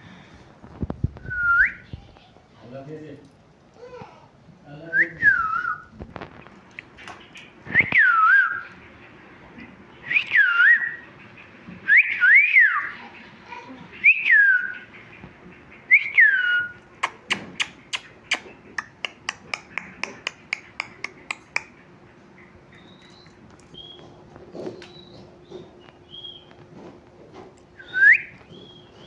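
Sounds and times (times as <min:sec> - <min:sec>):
parrot sharp clicks: 0:17.0 - 0:21.8.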